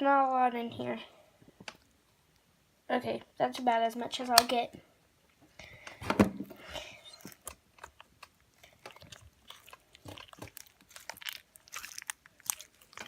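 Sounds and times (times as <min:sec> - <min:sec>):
slime squishing by hand: 0:06.5 - 0:13.0.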